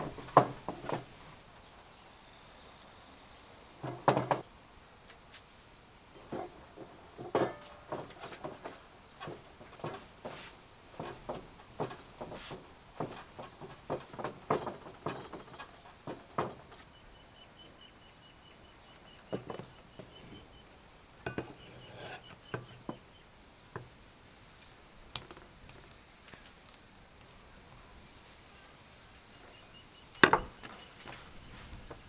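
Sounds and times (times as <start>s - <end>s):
high insect hiss: 0.0s - 32.0s
light knocks of food preparation: 6.2s - 16.9s, 19.2s - 20.6s, 21.2s - 23.1s, 29.6s - 32.0s.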